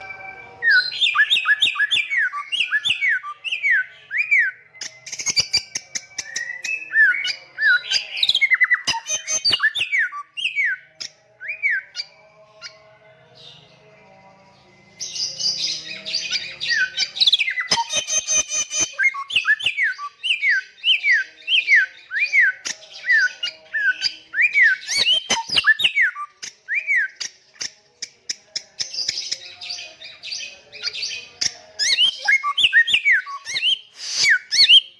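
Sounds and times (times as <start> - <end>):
bird whistling song: 0.0 - 12.8, 15.0 - 27.4, 28.5 - 34.9.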